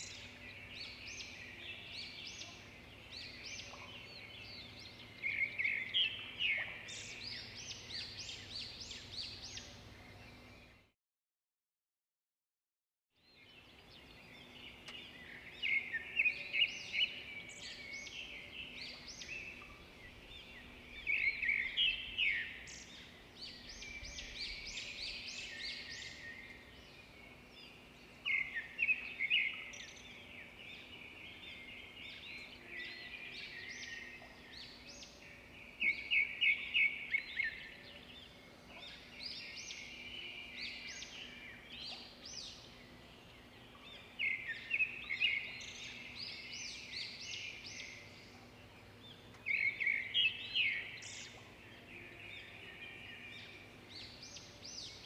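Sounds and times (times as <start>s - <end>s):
songbird chirping: 0.0s - 10.9s, 13.2s - 55.0s.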